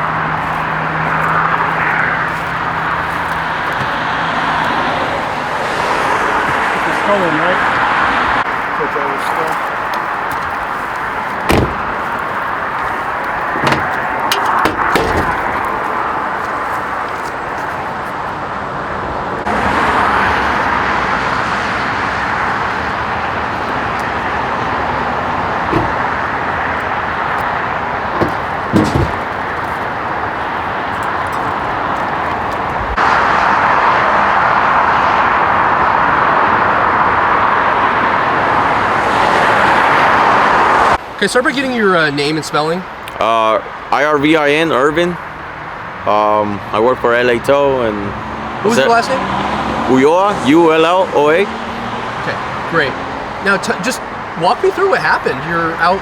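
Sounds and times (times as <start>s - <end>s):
vehicle engine noise: 0.0s - 39.2s
short clunks and clicks: 3.6s - 4.8s, 9.9s - 16.0s, 25.6s - 29.9s.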